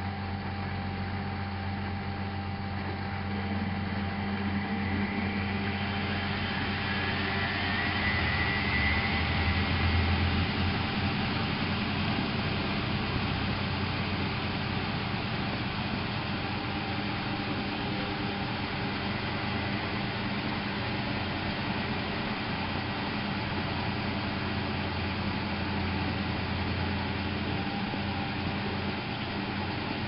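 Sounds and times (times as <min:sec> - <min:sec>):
high whine: 0:00.0 - 0:30.0
washing machine motor hum: 0:00.0 - 0:30.0.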